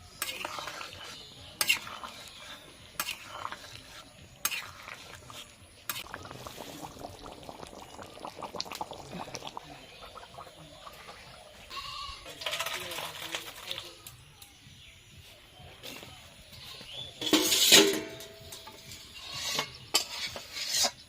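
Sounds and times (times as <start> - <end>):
curry bubbling in a pot: 0.0 - 11.7.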